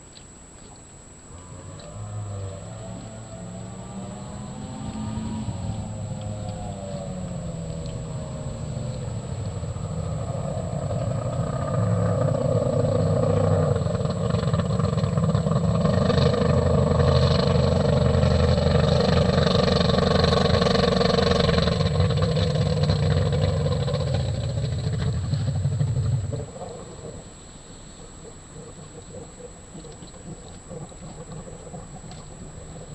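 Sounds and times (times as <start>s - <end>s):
racing boat engine running hard: 1.3s - 32.9s.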